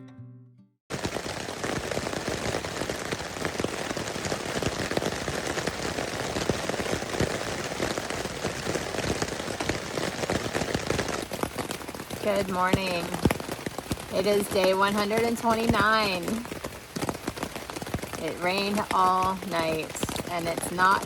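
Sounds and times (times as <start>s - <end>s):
acoustic guitar: 0.0s - 0.8s
raindrops pattering on a surface: 0.9s - 21.0s
steady rain: 0.9s - 21.0s.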